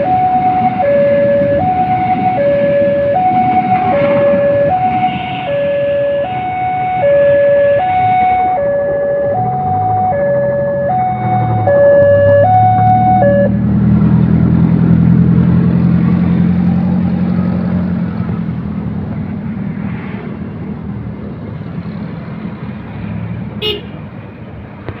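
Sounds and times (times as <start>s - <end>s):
two-tone crossing alarm: 0.0s - 13.6s
train engine drone: 0.0s - 22.9s.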